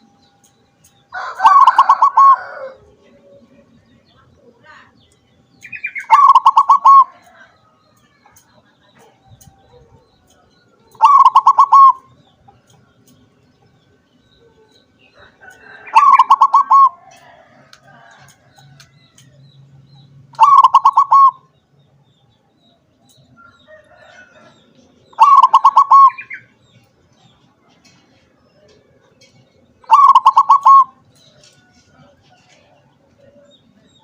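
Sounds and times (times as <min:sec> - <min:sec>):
dove cooing: 0:01.2 - 0:03.7, 0:05.8 - 0:07.4, 0:10.9 - 0:12.2, 0:14.4 - 0:18.2, 0:20.3 - 0:21.5, 0:25.1 - 0:26.5, 0:29.8 - 0:31.0.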